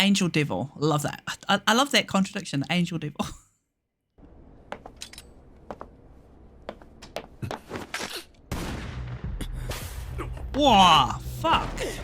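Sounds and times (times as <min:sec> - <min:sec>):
gunshots and sharp impacts: 0:08.4 - 0:10.1.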